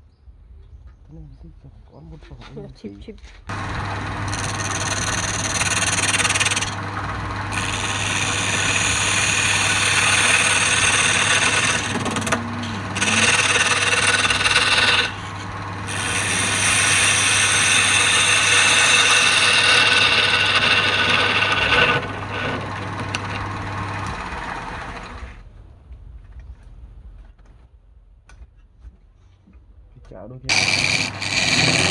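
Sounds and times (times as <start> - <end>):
lathe motor hum: 3.5 - 25.4, 30.5 - 31.9
tool scraping spinning wood: 3.5 - 25.4, 30.5 - 31.9.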